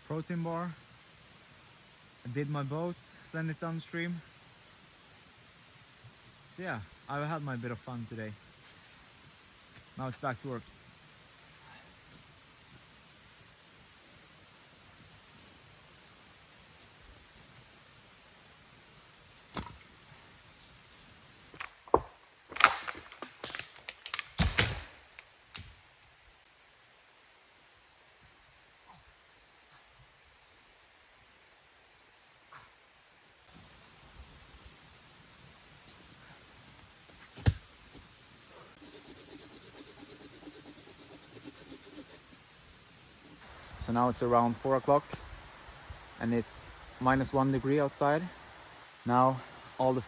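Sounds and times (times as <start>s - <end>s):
wooden knocks and cracks: 21.6s - 25.7s
hand saw rasping on firewood: 38.8s - 42.3s.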